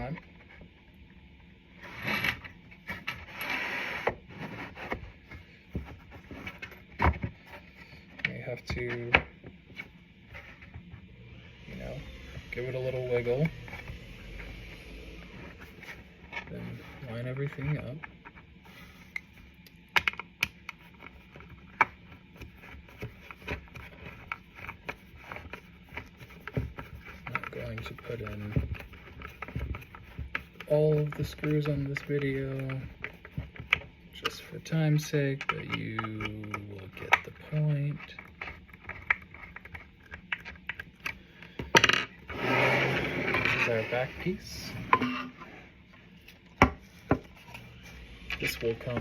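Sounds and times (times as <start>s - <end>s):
wooden shelf scraping: 42.2s - 46.1s.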